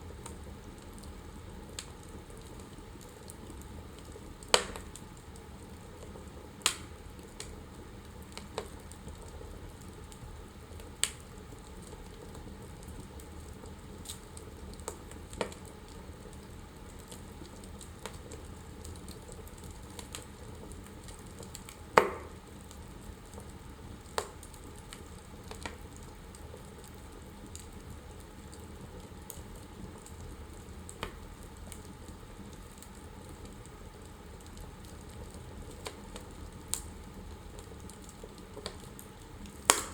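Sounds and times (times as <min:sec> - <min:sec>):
wood fire crackling and popping: 0:00.0 - 0:39.9
fire hissing: 0:34.8 - 0:39.9.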